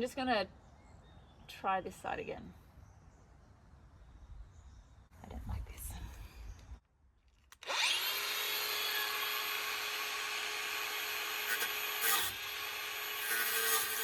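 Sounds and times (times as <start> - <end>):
angle grinder on steel: 7.6 - 14.0.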